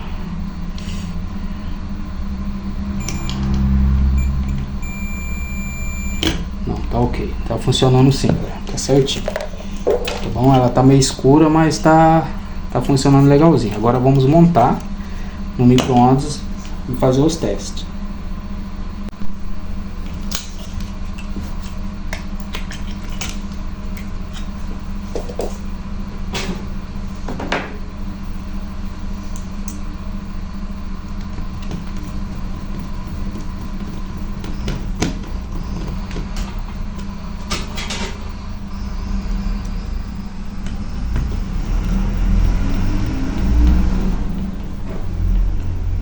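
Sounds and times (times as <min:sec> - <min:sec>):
steady low hum: 0:00.0 - 0:46.0
small parts and tools clattering: 0:31.6 - 0:38.2.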